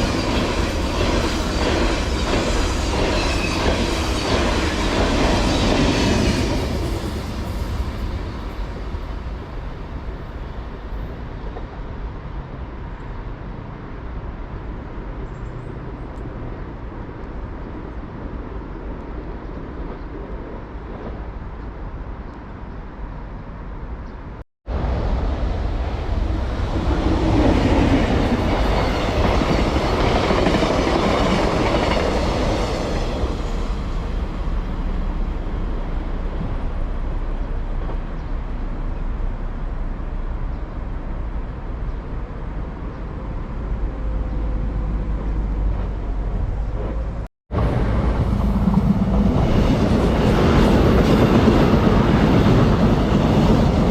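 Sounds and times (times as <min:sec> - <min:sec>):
train wheels clattering over track: 0:00.0 - 0:11.7, 0:26.0 - 0:36.8
train rumbling along rails: 0:00.0 - 0:53.9.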